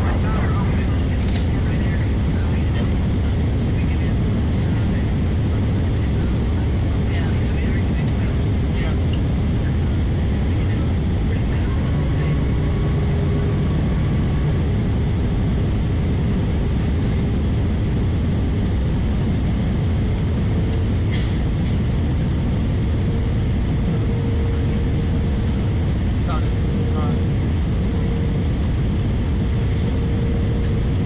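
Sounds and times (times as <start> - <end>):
faint steady tones: 0.0 - 20.9
aircraft cabin engine roar: 0.0 - 31.0.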